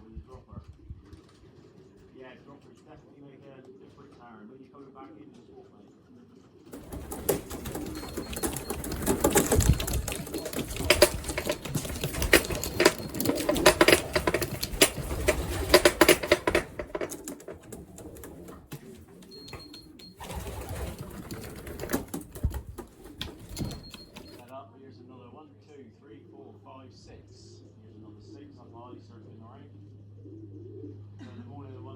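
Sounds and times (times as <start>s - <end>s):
pigeon wings clattering: 6.8s - 24.4s.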